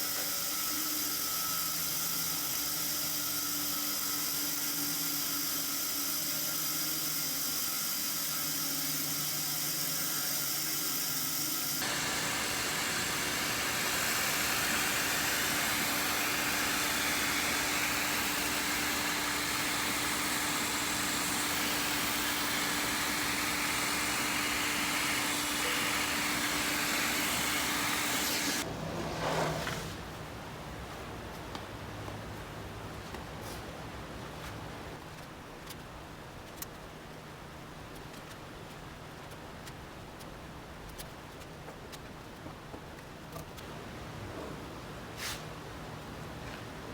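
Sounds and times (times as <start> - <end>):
woodworking power tool humming: 0.0 - 29.8.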